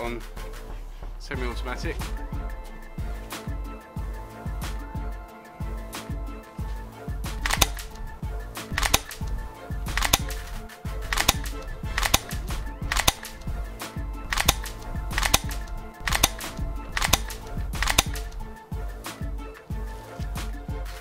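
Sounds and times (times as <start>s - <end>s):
background music: 0.0s - 21.0s
airsoft gun shots: 7.4s - 8.0s, 8.8s - 9.3s, 9.9s - 13.4s, 14.2s - 18.4s.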